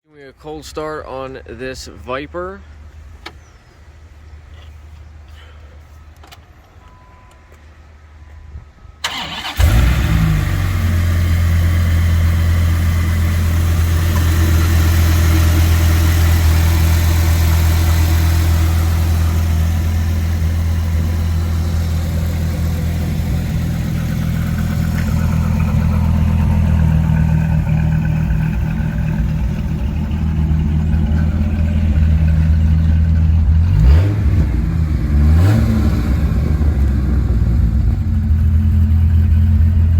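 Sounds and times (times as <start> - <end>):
car engine fast idle: 9.0 - 34.8, 37.2 - 39.9
car engine cranking: 9.0 - 39.9
engine revving: 9.1 - 39.9.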